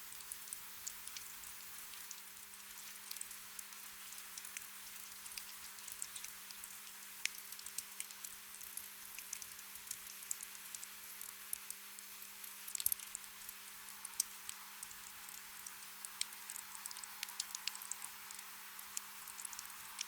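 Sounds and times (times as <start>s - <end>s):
gentle rain pattering: 0.0s - 20.0s.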